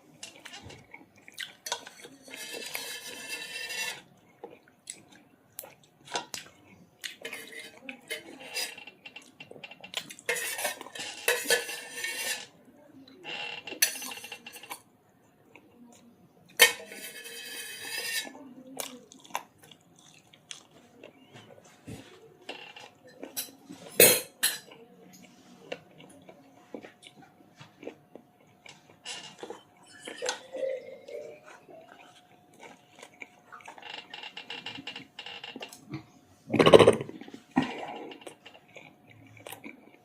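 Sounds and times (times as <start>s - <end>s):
cutlery scraping dishes: 0.2s - 0.9s, 1.5s - 4.1s, 7.1s - 12.6s, 13.3s - 14.8s, 16.6s - 18.4s, 21.3s - 25.4s, 28.7s - 38.8s
cutlery and dishes clinking: 1.5s - 4.1s, 7.1s - 12.5s, 13.3s - 14.8s, 16.6s - 18.4s, 21.4s - 25.3s, 28.7s - 31.3s, 36.5s - 38.7s.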